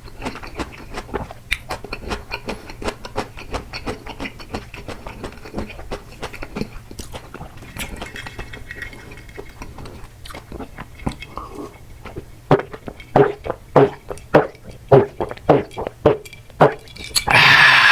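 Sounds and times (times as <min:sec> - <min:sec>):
mouth chewing food: 0:00.0 - 0:17.9.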